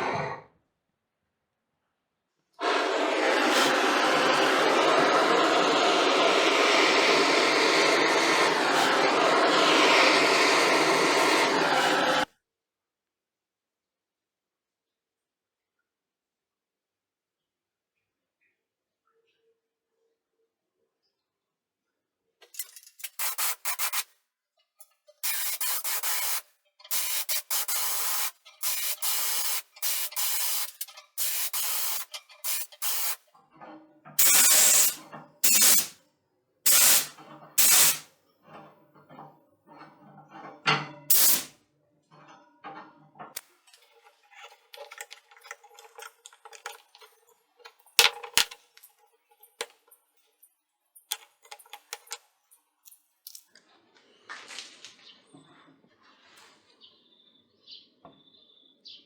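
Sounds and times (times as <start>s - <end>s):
aerosol spray can spraying: 2.6s - 12.2s, 23.0s - 24.1s, 25.2s - 33.2s, 34.2s - 35.9s, 36.7s - 38.1s, 41.1s - 41.5s
clicks and handling: 43.3s - 50.0s, 51.0s - 52.2s.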